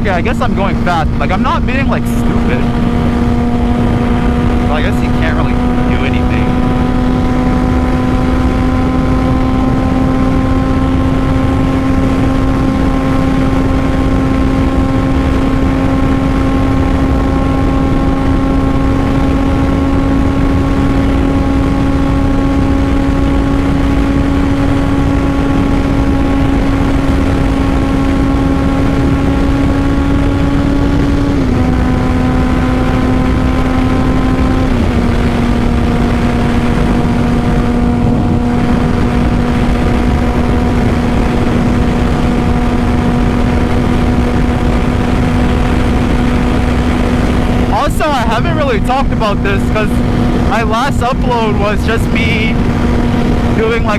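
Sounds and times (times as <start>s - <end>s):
motorcycle engine at high revs: 0.0s - 53.9s
wind rush: 0.0s - 53.9s.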